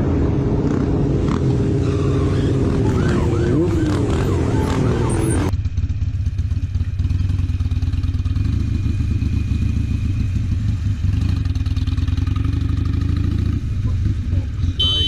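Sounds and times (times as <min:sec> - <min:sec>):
wavering pitched sound: 0:01.8 - 0:05.5
motorcycle engine running: 0:02.6 - 0:15.0.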